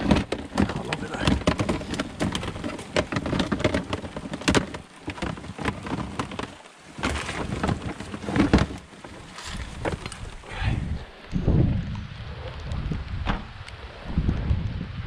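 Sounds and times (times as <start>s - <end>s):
sharp clicks and knocks: 0.0s - 10.3s
rain on a submerged camera: 0.0s - 15.0s.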